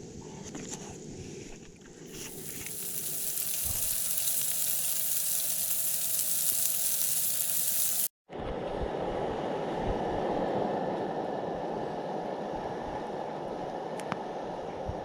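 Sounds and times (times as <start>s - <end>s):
food sizzling in a pan: 2.1s - 8.1s.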